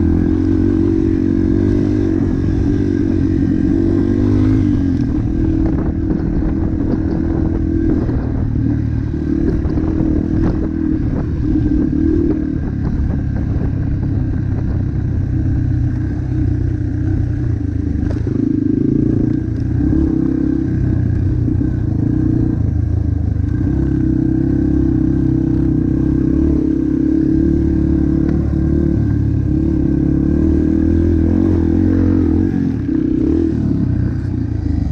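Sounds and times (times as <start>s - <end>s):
motocross bike engine revving: 0.0s - 12.9s, 23.5s - 34.9s.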